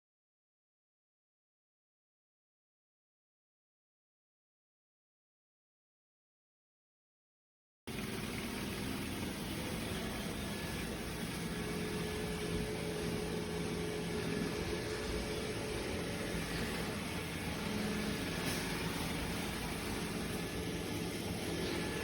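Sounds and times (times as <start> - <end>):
robot vacuum running: 7.9 - 22.0.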